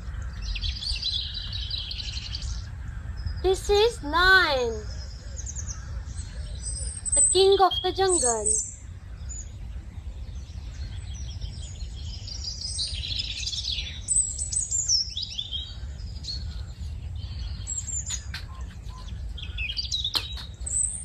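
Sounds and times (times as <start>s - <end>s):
steady low rumble: 0.0s - 7.4s, 8.0s - 21.0s
birds chirping: 0.0s - 21.0s.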